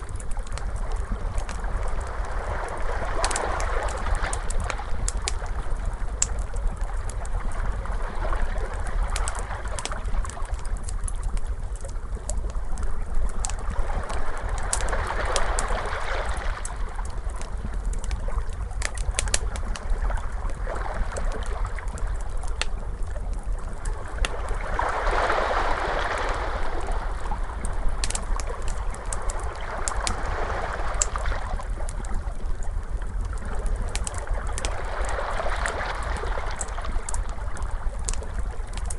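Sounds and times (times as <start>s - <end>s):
low steady rumble: 0.0s - 38.9s
wood fire crackling: 0.0s - 38.9s
ocean waves washing in: 24.2s - 31.8s.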